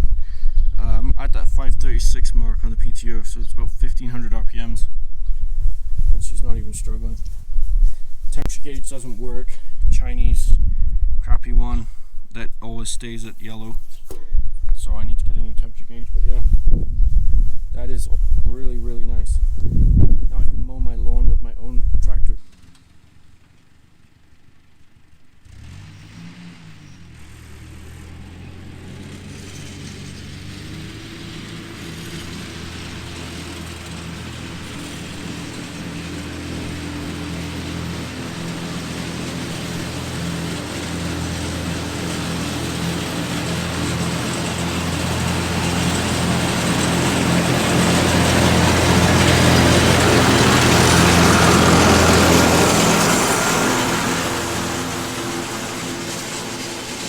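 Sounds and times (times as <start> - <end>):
tractor engine running: 0.0 - 19.9, 22.4 - 57.0
mower whirring: 0.0 - 20.2, 22.4 - 57.0.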